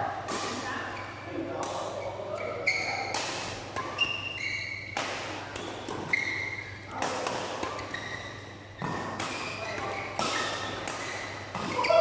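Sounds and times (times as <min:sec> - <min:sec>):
shoes squeaking on floor: 0:02.0 - 0:03.1, 0:03.8 - 0:05.0, 0:05.7 - 0:06.8, 0:07.7 - 0:12.0
racket hitting shuttlecock: 0:02.6 - 0:12.0.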